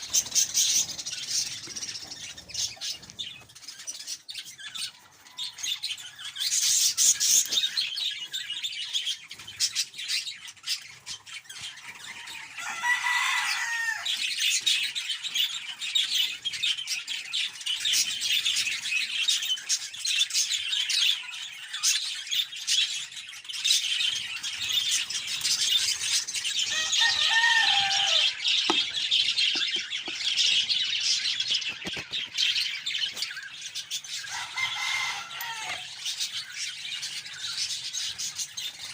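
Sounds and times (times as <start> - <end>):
budgie chicks chattering: 0.0 - 38.9.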